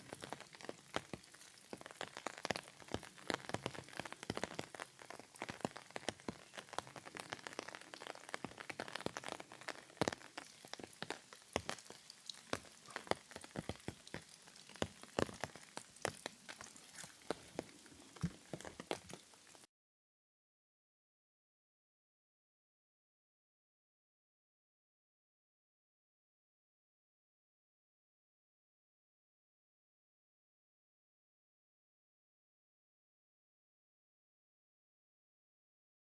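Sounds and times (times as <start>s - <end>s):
raindrops tapping on a surface: 0.0s - 19.7s
soft steady rain hiss: 0.0s - 19.7s.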